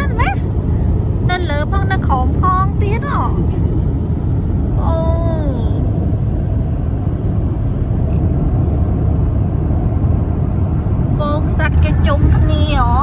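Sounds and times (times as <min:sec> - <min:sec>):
car driving at highway speed: 0:00.0 - 0:13.0.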